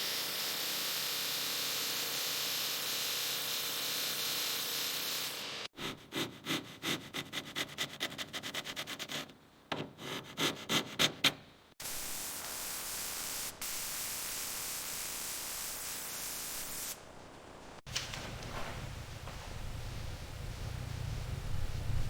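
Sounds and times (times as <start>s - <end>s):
steady hiss: 11.8s - 22.0s.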